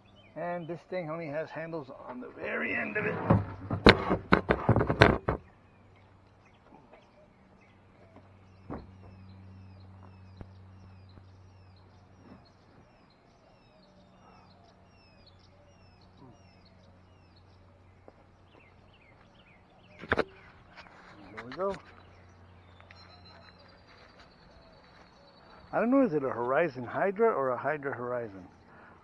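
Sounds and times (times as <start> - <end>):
bird singing downward chirps: 0.0 - 3.8, 5.4 - 29.0
knock: 3.0 - 5.4.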